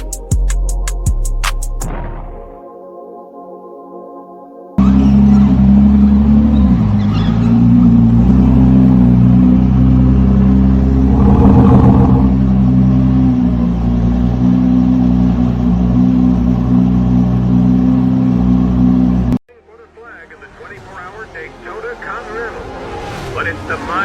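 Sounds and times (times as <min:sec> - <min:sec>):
car engine running: 0:10.9 - 0:12.5.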